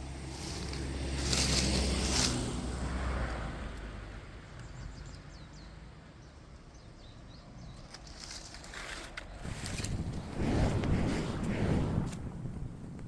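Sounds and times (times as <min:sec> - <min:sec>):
wind rumble on microphone: 0:09.3 - 0:13.0.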